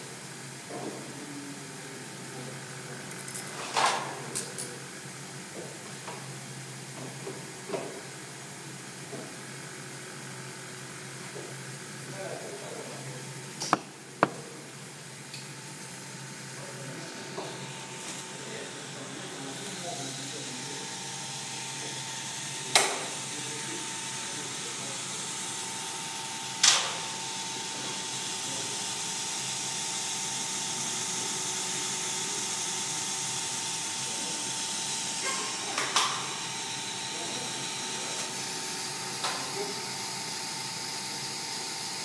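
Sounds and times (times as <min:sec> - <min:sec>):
tattoo machine humming: 0:15.7 - 0:42.0.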